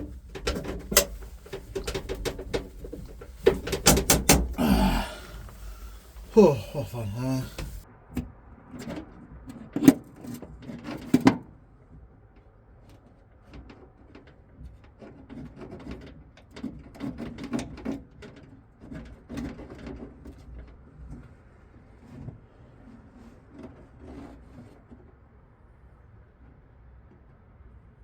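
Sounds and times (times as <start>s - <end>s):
knocks and clatter: 0.0s - 4.6s
rubbing and scraping: 0.0s - 4.6s.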